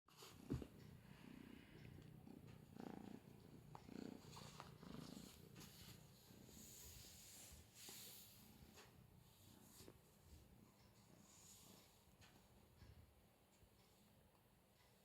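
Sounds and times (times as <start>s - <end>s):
kitten purring: 0.2s - 7.4s.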